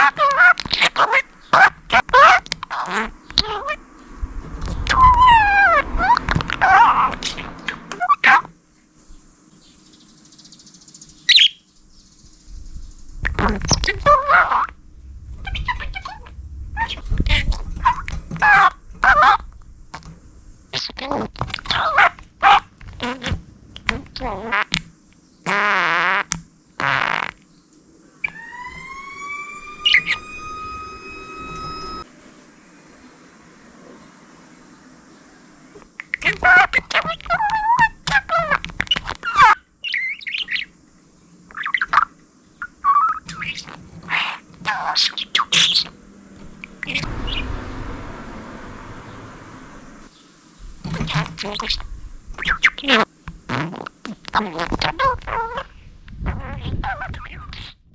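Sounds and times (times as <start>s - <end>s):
budgerigar chattering: 0.0s - 3.8s, 11.3s - 11.6s, 20.7s - 24.8s, 36.0s - 40.8s, 41.5s - 46.0s, 51.1s - 57.8s
budgerigar sharp chirp: 10.0s - 11.7s, 36.0s - 40.8s
long whistled tone: 14.6s - 18.2s, 28.2s - 32.1s, 46.8s - 50.1s.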